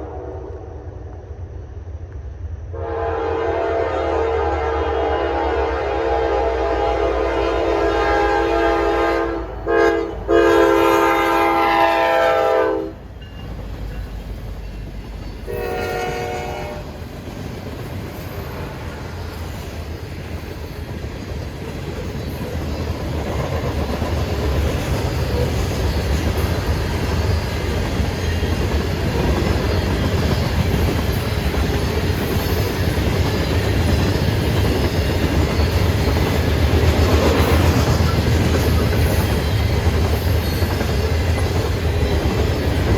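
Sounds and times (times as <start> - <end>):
diesel locomotive horn: 0.0 - 0.9, 2.7 - 13.1, 15.4 - 17.0
train wheels clattering on rails: 13.0 - 42.9.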